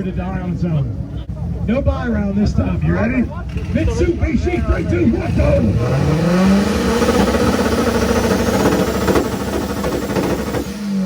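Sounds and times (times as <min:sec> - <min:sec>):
engine on rev limiter with pops: 0:05.4 - 0:11.0.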